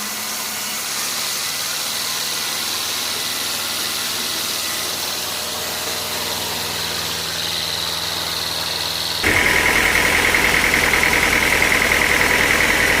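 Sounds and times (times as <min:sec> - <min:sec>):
sawmill machinery whining: 0:00.0 - 0:13.0
machinery rattling: 0:05.2 - 0:13.0.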